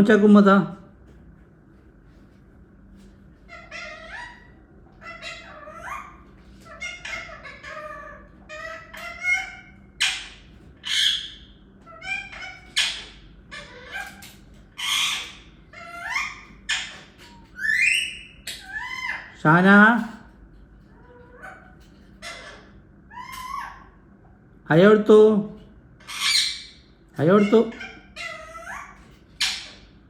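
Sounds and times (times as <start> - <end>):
parrot warbling chatter: 3.4 - 20.2, 20.8 - 24.2, 26.0 - 30.0
parrot squawks: 3.5 - 19.4, 21.0 - 24.0, 26.0 - 30.0.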